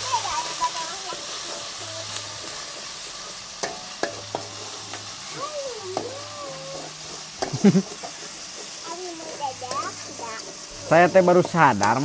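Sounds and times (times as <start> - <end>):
food sizzling in hot oil: 0.0 - 12.0
spatula clicking against pan: 3.6 - 5.0, 7.4 - 8.2.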